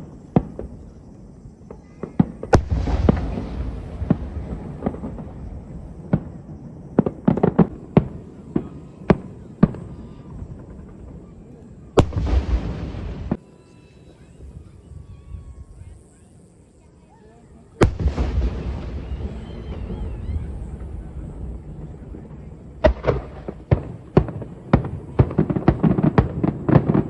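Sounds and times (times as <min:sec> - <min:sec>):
fireworks bangs: 0:00.0 - 0:16.0, 0:17.8 - 0:27.0.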